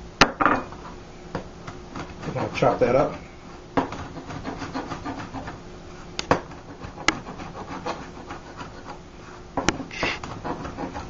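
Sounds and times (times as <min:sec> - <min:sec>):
knife chopping on cutting board: 0:03.8 - 0:05.6, 0:06.2 - 0:08.6, 0:09.6 - 0:11.0.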